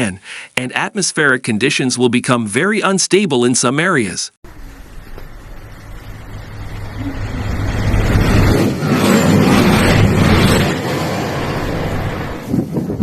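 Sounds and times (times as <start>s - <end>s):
road vehicle passing by: 4.5s - 12.7s.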